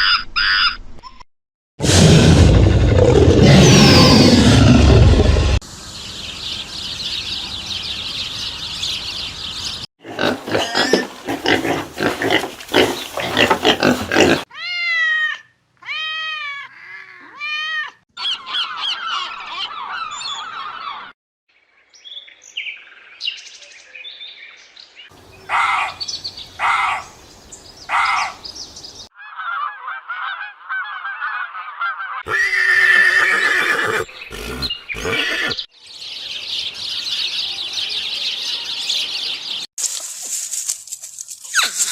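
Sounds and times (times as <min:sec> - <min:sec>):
bird squawks and honks: 0:25.4 - 0:27.1, 0:27.9 - 0:28.4, 0:29.2 - 0:35.6.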